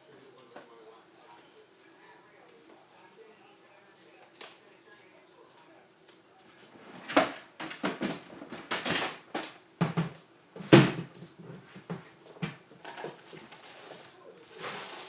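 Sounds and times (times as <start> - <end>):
clatters in a refrigerator: 6.6 - 15.0.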